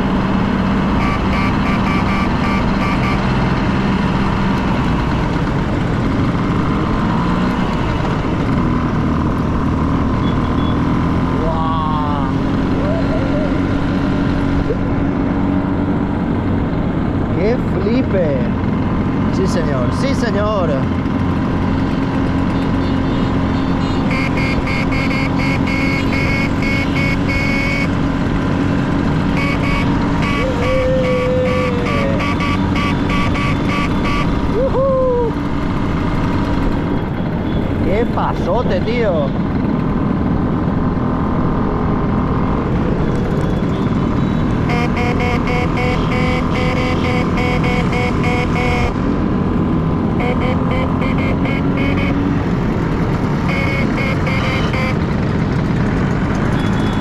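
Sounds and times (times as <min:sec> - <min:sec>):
scooter engines running: 0:00.0 - 0:57.0.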